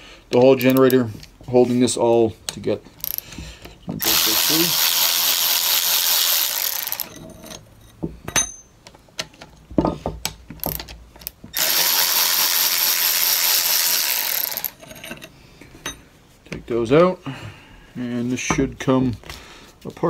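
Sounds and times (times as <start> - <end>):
tool and parts clicking and knocking: 0.3 - 1.4, 2.4 - 16.6
ratchet wrench ratcheting: 4.0 - 7.2, 11.6 - 14.8.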